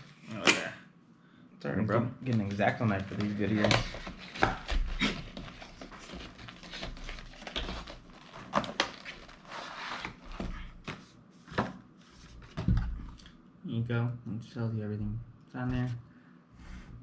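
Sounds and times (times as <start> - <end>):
cardboard rustling: 2.3 - 12.8.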